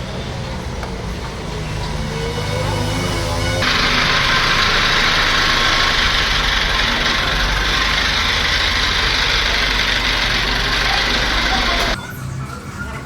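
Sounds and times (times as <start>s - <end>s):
machine hiss and hum: 3.6s - 12.0s.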